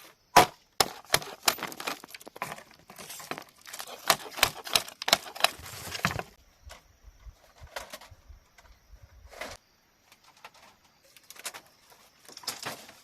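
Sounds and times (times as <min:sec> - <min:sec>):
bamboo cracking and snapping: 0:00.4 - 0:06.4.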